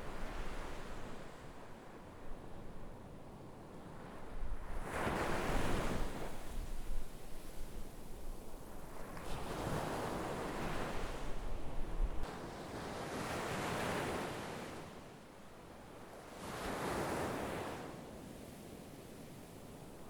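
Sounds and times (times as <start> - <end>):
wind rumble on microphone: 0.0 - 12.4.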